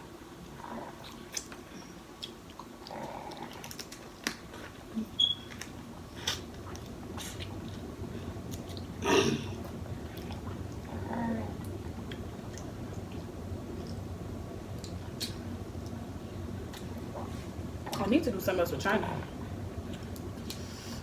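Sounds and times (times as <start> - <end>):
chewing and smacking: 0.7 - 9.0, 9.6 - 14.1, 14.7 - 16.0, 16.6 - 18.1, 19.8 - 20.7.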